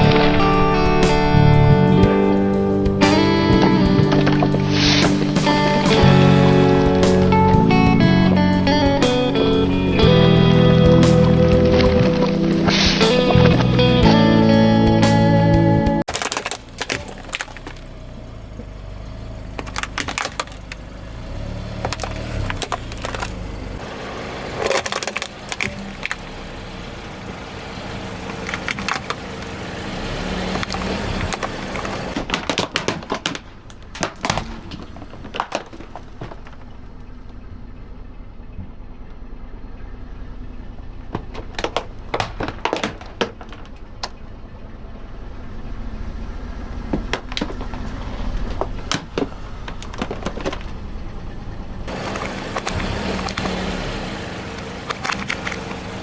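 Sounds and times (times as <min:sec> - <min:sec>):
low engine and tyre rumble: 0:00.0 - 0:56.0
tyres crushing objects: 0:16.0 - 0:26.5, 0:28.2 - 0:37.0, 0:41.2 - 0:44.2, 0:46.8 - 0:50.9, 0:51.9 - 0:56.0.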